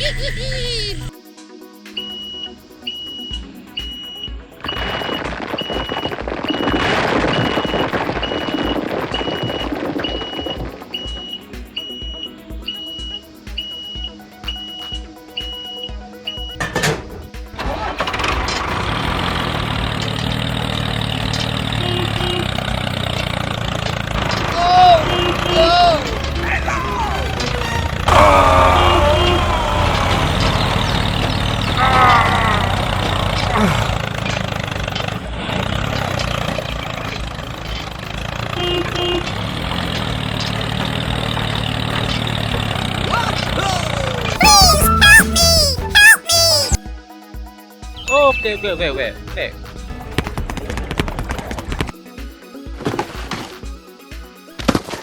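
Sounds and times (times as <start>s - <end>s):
small tractor engine running: 17.6s - 44.4s.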